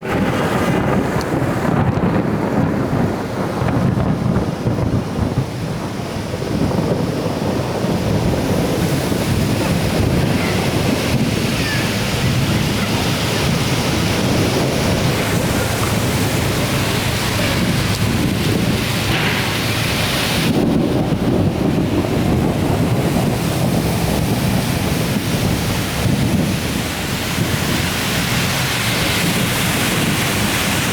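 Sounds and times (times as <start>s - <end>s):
heavy rain: 0.0s - 30.9s
running floodwater: 0.0s - 30.9s
wind buffeting microphone: 0.0s - 30.9s.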